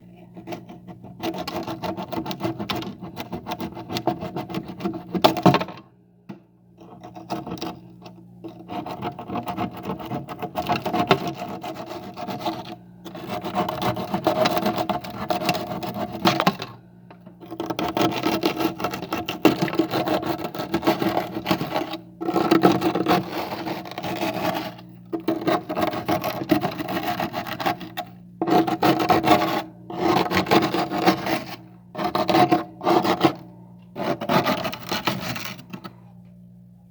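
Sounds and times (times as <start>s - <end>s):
frost scraping: 17.4s - 33.4s.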